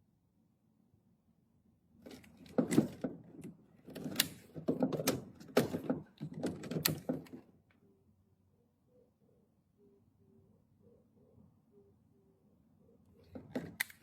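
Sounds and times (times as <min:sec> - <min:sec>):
hard objects knocking and rattling: 0:02.1 - 0:07.4.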